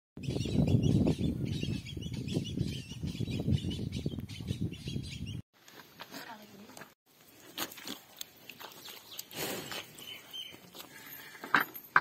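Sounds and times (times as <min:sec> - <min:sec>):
small birds chirping: 0:00.2 - 0:05.4, 0:08.2 - 0:11.4.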